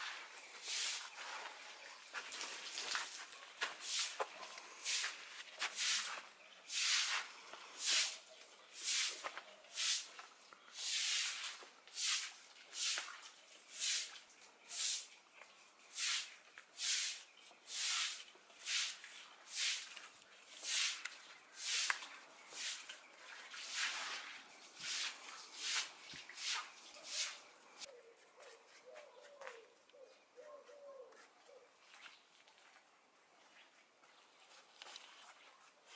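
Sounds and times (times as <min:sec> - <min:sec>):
paintbrush scrubbing concrete: 0:00.0 - 0:15.2, 0:15.9 - 0:27.5.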